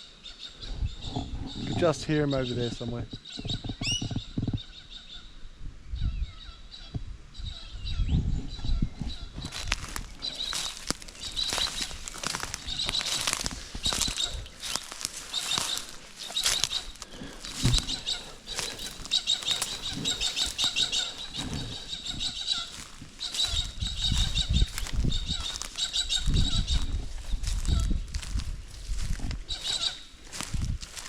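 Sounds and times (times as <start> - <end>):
small birds chirping: 0.0 - 31.0
low rumbles on microphone: 5.7 - 15.0, 15.7 - 31.0.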